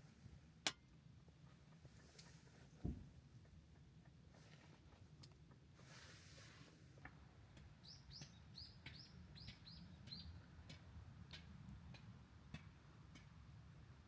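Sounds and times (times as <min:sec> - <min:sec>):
small bird calls: 0:07.7 - 0:10.4.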